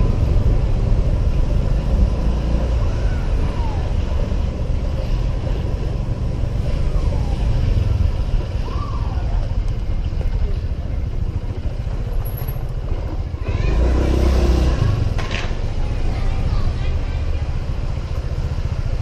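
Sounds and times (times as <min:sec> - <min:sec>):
scooter engine drone: 0:00.0 - 0:19.0
traffic: 0:00.0 - 0:19.0.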